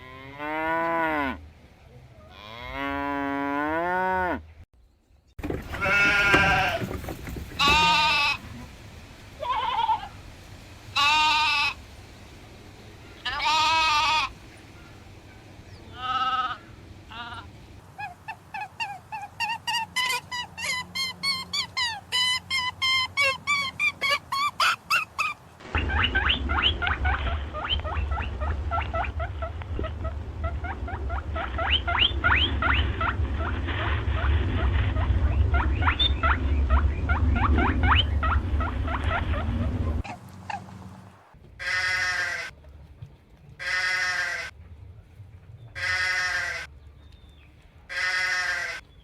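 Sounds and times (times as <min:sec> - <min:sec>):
animal squeaks and chirps: 0:18.0 - 0:25.4
low rumble: 0:25.6 - 0:41.6.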